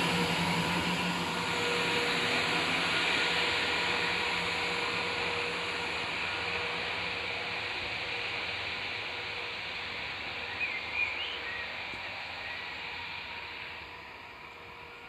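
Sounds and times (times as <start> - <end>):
diesel train humming: 0.0 - 15.0.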